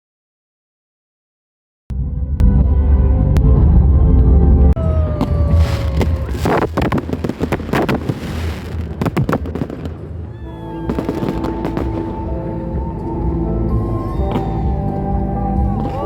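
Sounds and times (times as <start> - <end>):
background music: 1.9 - 6.5, 7.1 - 16.0
sharp bangs and crackles: 5.3 - 12.3.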